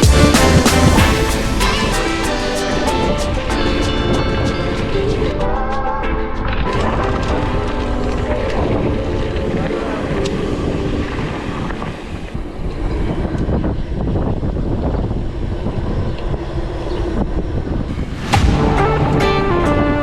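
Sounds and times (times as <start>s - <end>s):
loud whoosh: 0.0s - 5.4s, 17.9s - 20.0s
wind on microphone: 0.0s - 20.0s.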